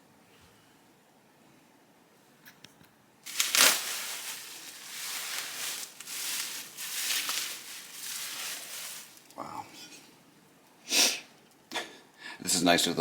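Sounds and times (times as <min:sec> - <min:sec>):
packing material crinkling and tearing: 0:03.3 - 0:09.5.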